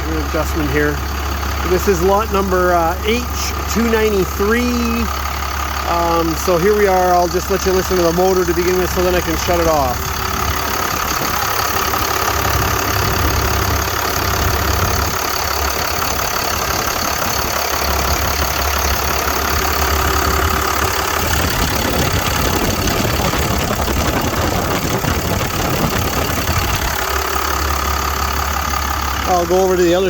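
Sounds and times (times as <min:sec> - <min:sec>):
diesel truck engine idling: 0:00.0 - 0:30.0.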